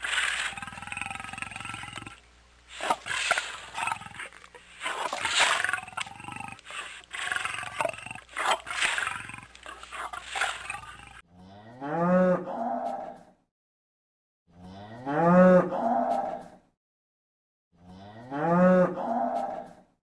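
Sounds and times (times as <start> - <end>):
cow mooing: 0.0 - 13.1, 14.6 - 16.4, 17.8 - 19.7
animal roaring and growling: 0.0 - 13.2.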